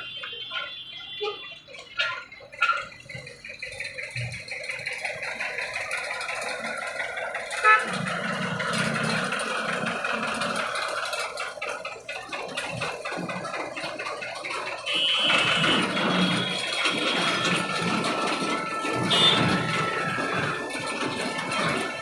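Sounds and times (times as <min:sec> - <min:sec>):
vehicles rattling over rails: 0:00.0 - 0:22.0.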